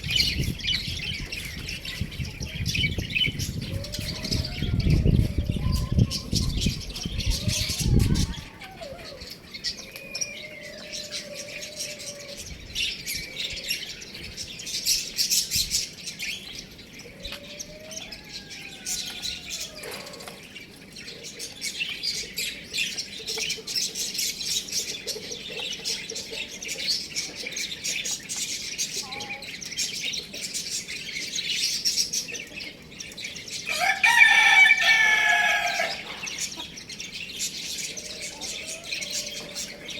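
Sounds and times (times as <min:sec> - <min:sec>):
small birds chirping: 0:00.0 - 0:39.9
rooster crowing: 0:17.4 - 0:20.2, 0:33.7 - 0:36.4.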